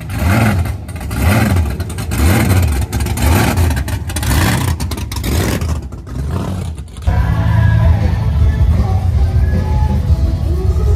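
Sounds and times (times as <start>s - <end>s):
car engine revving: 0.0s - 7.2s.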